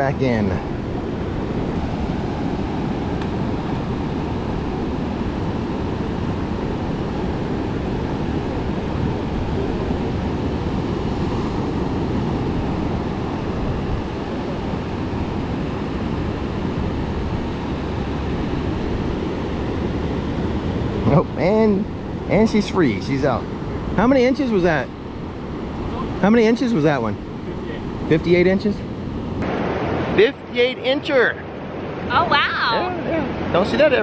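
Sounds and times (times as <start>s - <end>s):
wind rumble on microphone: 0.0s - 30.5s
ocean surf washing ashore: 0.0s - 34.0s.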